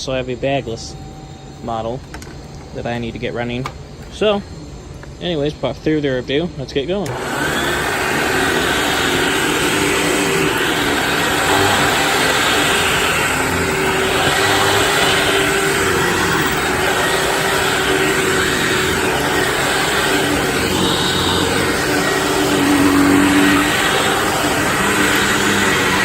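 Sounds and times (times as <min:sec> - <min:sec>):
vacuum cleaner running: 0:07.0 - 0:26.0.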